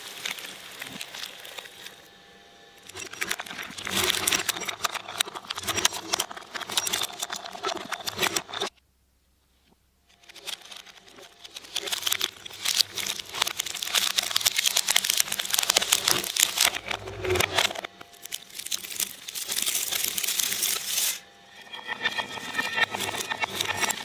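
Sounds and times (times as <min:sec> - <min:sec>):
motor running with a rattle: 0:00.0 - 0:08.7, 0:10.1 - 0:24.0
shredder crunching material: 0:10.6 - 0:21.2.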